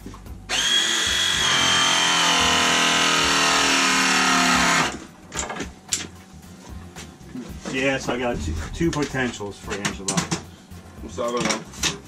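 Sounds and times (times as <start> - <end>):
power tool motor running: 0.5 - 5.0.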